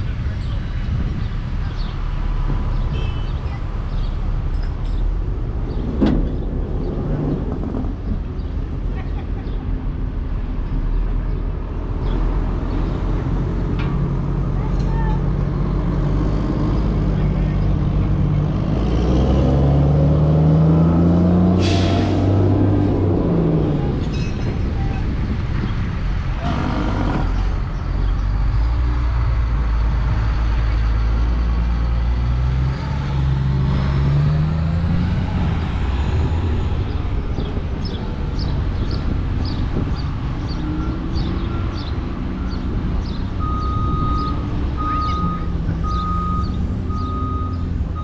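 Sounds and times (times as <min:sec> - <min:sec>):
heavy truck engine rumbling: 0:00.0 - 0:48.0
reversing alarm beeping: 0:43.4 - 0:48.0.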